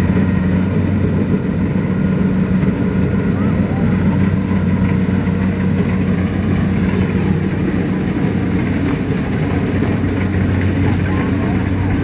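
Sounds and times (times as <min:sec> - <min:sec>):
diesel engine droning under load: 0:00.0 - 0:12.0.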